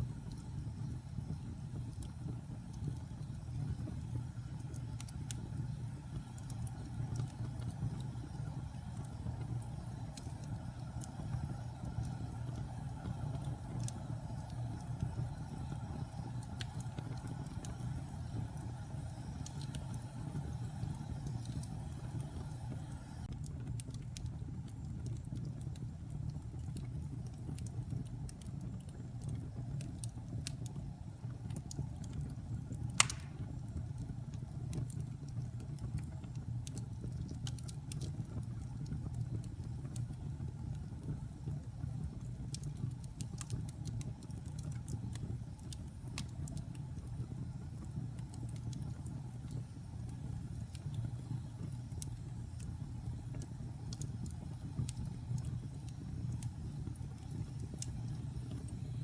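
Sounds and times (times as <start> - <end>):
fire crackles: 0.0 - 59.0
low roar of flames: 0.0 - 59.0
loud sharp pop: 33.0 - 33.5.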